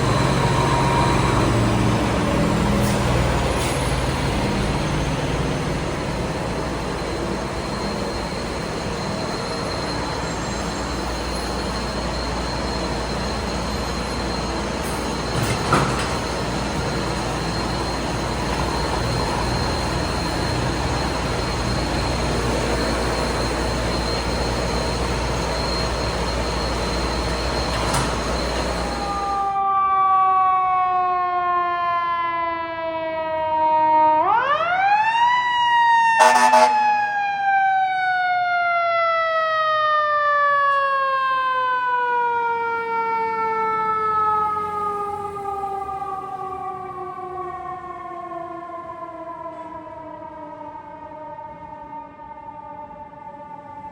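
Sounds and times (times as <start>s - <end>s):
fire truck mechanical siren: 0.0s - 53.9s
horn blast: 36.2s - 36.9s.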